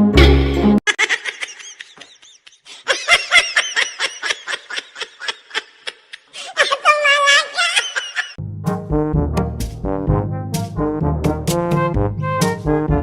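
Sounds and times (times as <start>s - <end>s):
high-pitched giggling: 0.9s - 8.4s.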